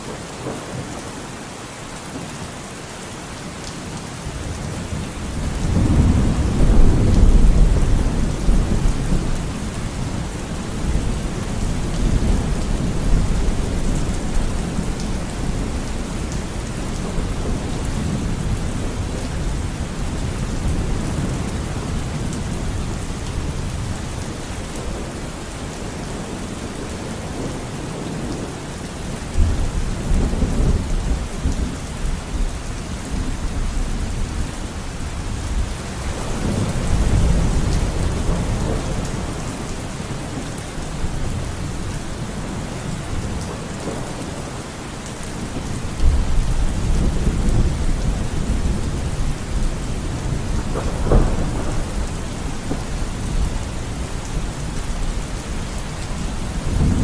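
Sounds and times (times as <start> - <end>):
steady rain: 0.0 - 57.0
rolling thunder: 4.7 - 25.1, 35.1 - 44.4, 45.4 - 55.4, 56.5 - 57.0.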